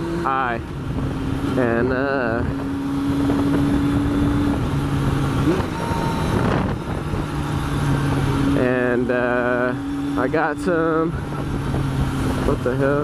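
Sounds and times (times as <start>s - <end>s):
motorcycle engine running: 0.0s - 13.0s
wind and road noise: 0.0s - 13.0s
person speaking: 1.5s - 2.6s.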